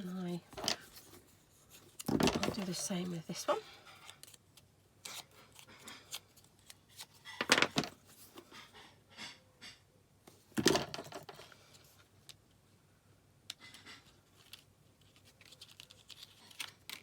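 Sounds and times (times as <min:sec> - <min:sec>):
paper rustling: 0:00.0 - 0:08.4, 0:14.1 - 0:17.0.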